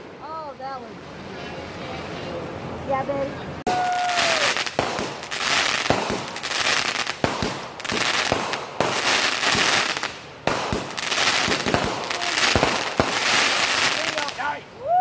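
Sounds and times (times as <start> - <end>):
firework bangs: 3.7 - 14.6
fireworks crackling: 3.7 - 15.0.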